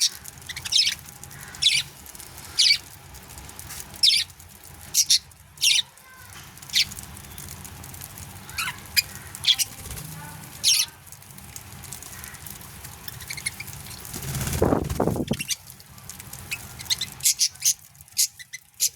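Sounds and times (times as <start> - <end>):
budgerigars chirping: 0.0 - 1.9, 2.5 - 2.8, 4.0 - 4.3, 5.0 - 5.8, 8.6 - 9.8, 10.6 - 10.9, 13.1 - 14.0, 16.5 - 18.9.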